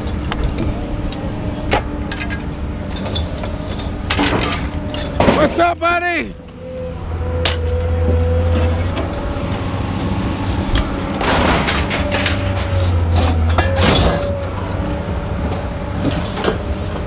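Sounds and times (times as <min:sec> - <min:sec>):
engine running: 0:00.0 - 0:17.0
scrap metal clattering and scraping: 0:01.7 - 0:05.8, 0:10.7 - 0:14.6.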